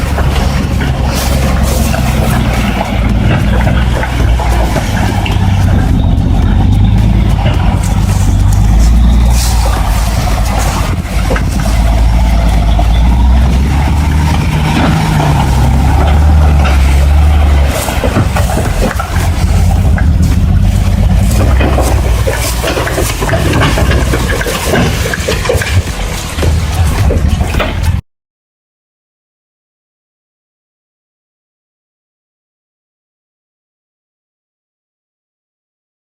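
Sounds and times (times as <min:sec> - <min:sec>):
engine knocks and clatter: 0:00.0 - 0:28.0
truck engine running: 0:00.0 - 0:28.0.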